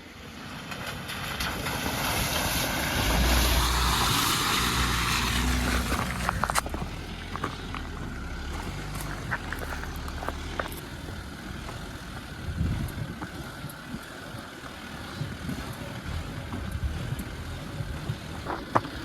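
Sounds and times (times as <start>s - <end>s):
car engine running low: 0.1s - 19.0s
clicks and knocks from rough road: 0.3s - 19.0s.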